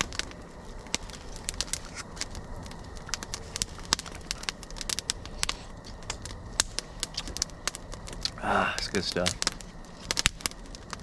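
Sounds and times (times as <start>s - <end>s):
campfire crackling and popping: 0.0s - 11.0s
low fire hiss: 0.0s - 11.0s.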